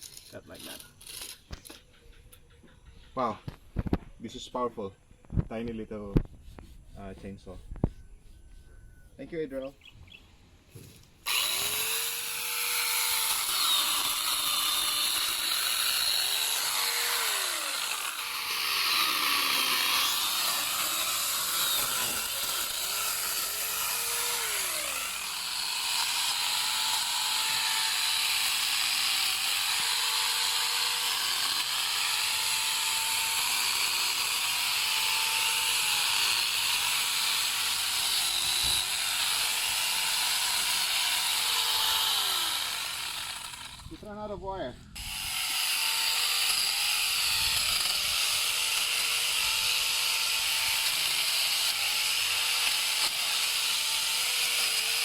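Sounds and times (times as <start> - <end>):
angle grinder chainsaw cutting wood: 11.2 - 44.0, 45.0 - 55.0.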